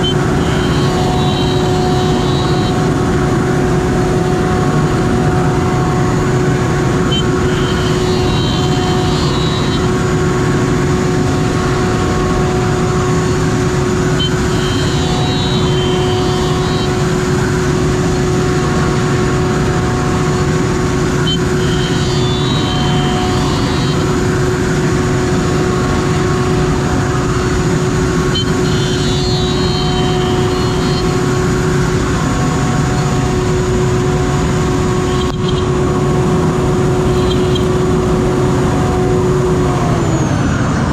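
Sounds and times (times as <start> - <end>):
high machine whine: 0.0 - 40.9
cnc router milling wood: 12.0 - 40.9.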